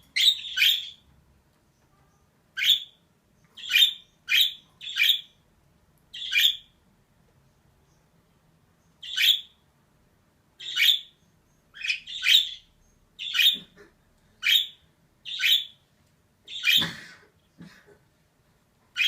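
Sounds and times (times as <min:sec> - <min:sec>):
budgerigar chirping harshly: 0:00.2 - 0:01.0, 0:02.6 - 0:03.0, 0:03.6 - 0:05.4, 0:06.2 - 0:06.7, 0:09.0 - 0:09.6, 0:10.6 - 0:11.2, 0:11.8 - 0:13.7, 0:14.4 - 0:15.8, 0:16.5 - 0:16.9.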